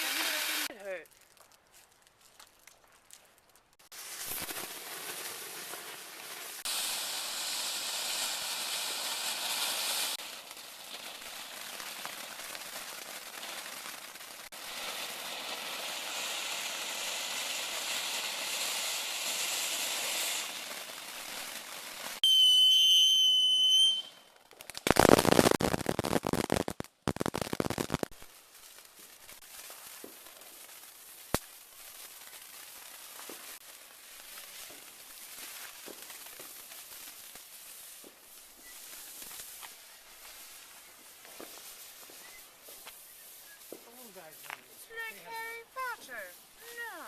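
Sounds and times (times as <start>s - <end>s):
fireworks fountain hissing: 0.0s - 1.0s, 3.8s - 47.0s
shrill firework whistle: 22.2s - 24.3s.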